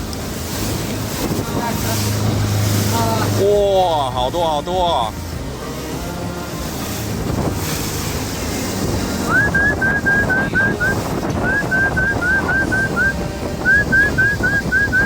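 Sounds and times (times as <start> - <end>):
boat and water rumble: 0.0 - 15.0.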